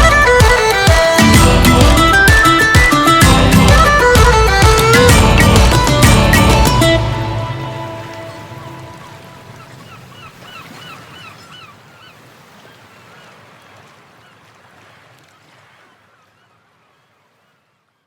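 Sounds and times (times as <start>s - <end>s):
electronic music: 0.0s - 9.0s
sea-like noise: 0.0s - 16.5s.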